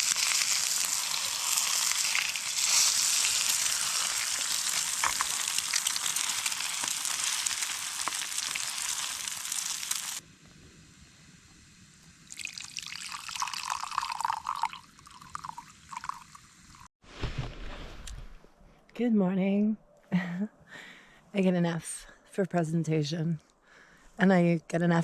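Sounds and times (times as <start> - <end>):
food sizzling in a frying pan: 0.0 - 10.2
liquid pouring: 12.3 - 16.9.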